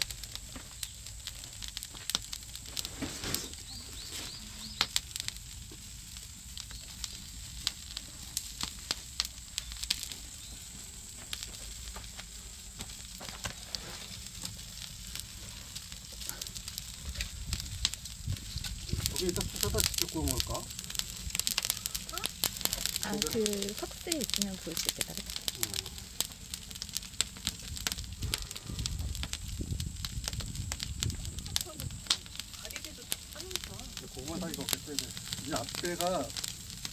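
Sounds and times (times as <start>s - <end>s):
fire hiss: 0.0s - 36.9s
wood fire crackling and popping: 0.0s - 36.9s.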